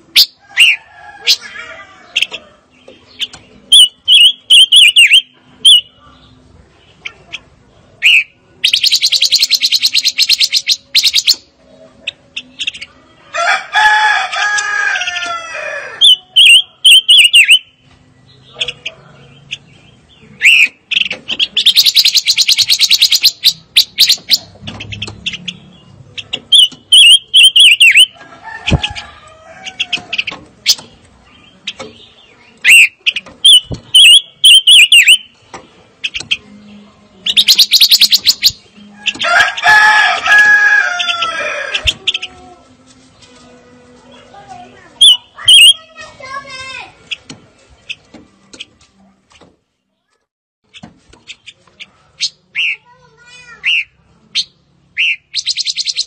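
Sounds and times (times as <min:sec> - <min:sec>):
rapid bird chatter: 0:00.0 - 0:43.4, 0:44.1 - 0:49.4, 0:50.7 - 0:56.0
bird whistled phrases: 0:03.7 - 0:05.9, 0:08.0 - 0:11.4, 0:16.0 - 0:17.8, 0:20.4 - 0:25.0, 0:26.5 - 0:28.2, 0:32.6 - 0:35.3, 0:37.3 - 0:39.2, 0:45.0 - 0:46.0, 0:52.2 - 0:52.8, 0:53.6 - 0:56.0
low drawn-out bird calls: 0:16.0 - 0:30.8, 0:31.5 - 0:39.4.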